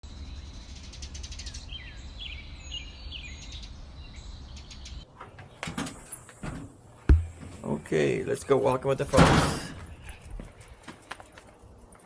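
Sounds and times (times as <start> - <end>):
small birds chirping: 0.0 - 5.6, 9.8 - 11.8
steady low hum: 6.8 - 7.9
sharp knocks: 7.1 - 7.6.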